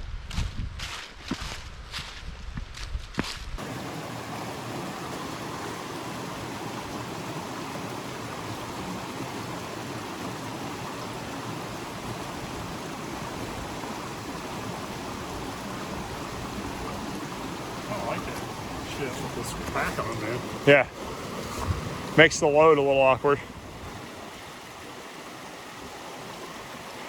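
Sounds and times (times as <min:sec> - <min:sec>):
footsteps: 0:00.2 - 0:03.6
mountain stream rushing: 0:03.6 - 0:27.0.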